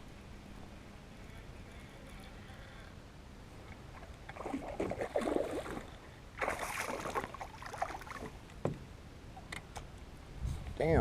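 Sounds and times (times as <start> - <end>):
water splashing around kayak: 3.8 - 8.4.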